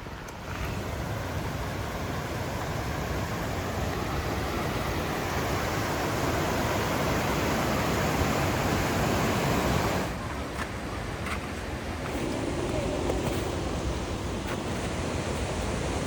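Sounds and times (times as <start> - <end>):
steady rushing noise: 11.1 - 16.0.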